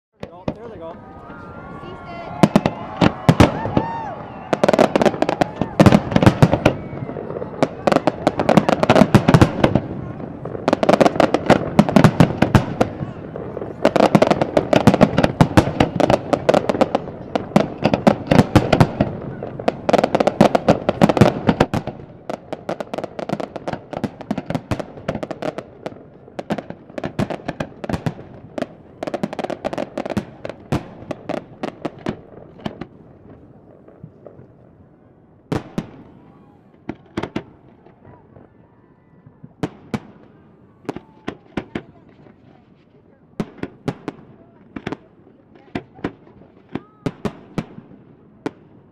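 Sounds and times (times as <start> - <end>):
fireworks bangs and crackling: 0.2 - 48.9.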